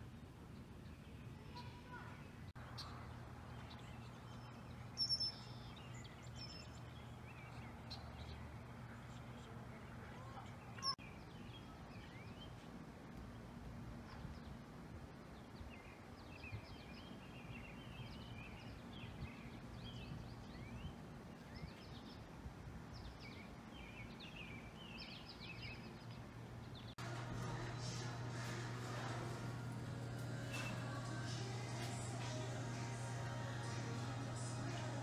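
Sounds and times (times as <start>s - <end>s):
faint low outdoor hum: 0.0s - 35.0s
small birds chirping: 0.2s - 13.4s.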